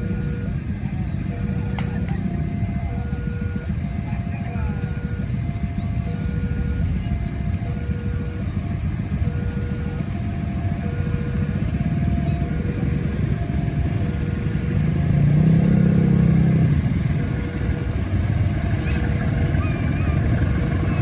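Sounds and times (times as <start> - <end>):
level crossing two-tone alarm: 0.0 - 21.0
road traffic rumble: 0.0 - 21.0
motorcycle engine revving: 4.8 - 19.6.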